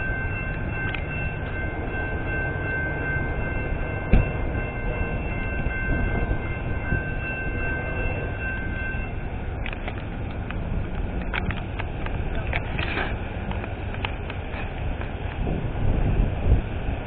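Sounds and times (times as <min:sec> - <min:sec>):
crossing warning bell ringing: 0:00.0 - 0:17.0
train locomotives rumbling: 0:00.0 - 0:17.0.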